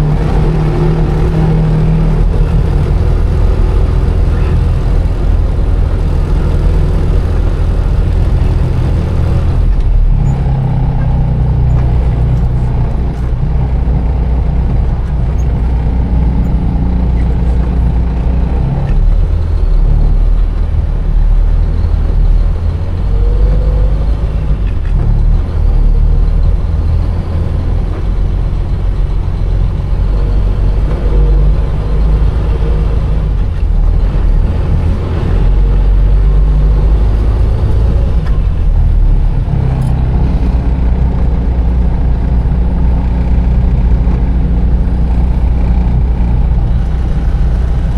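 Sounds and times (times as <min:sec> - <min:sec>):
truck diesel engine running: 0:00.0 - 0:47.9.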